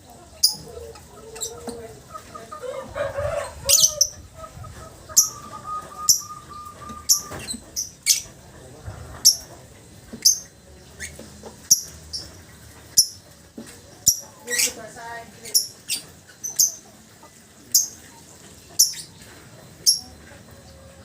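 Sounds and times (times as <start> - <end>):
bird chirping: 5.1 - 8.3, 15.4 - 16.8, 18.8 - 19.2.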